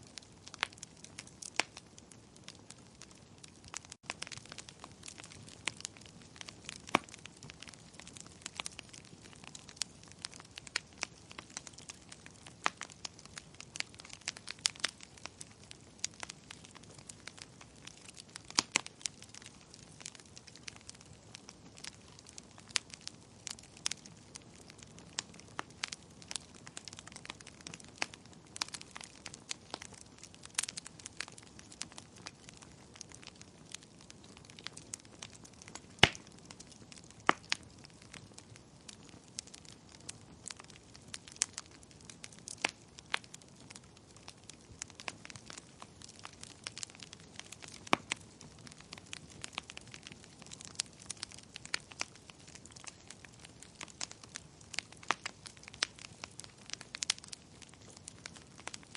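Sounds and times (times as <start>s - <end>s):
wood fire crackling and popping: 0.0s - 58.9s.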